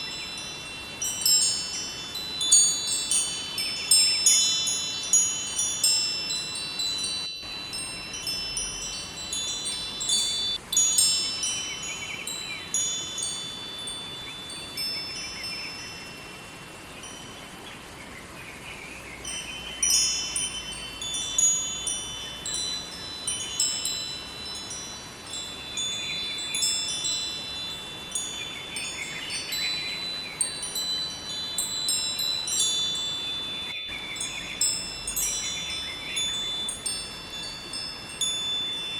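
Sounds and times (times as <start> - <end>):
wind chimes ringing: 0.0 - 17.6, 19.2 - 38.9
river water rushing: 0.0 - 17.9.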